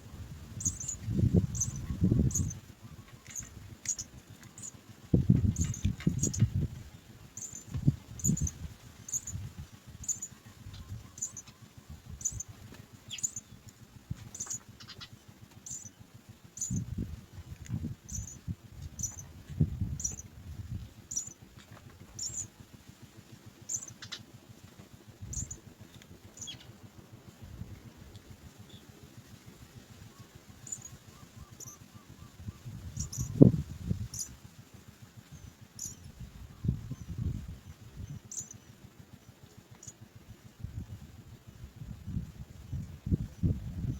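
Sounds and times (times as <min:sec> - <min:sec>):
nestlings cheeping: 0:00.0 - 0:22.7, 0:23.6 - 0:27.4, 0:30.0 - 0:34.4, 0:35.2 - 0:40.5
low rustling and bumps: 0:03.3 - 0:10.1, 0:16.6 - 0:22.5.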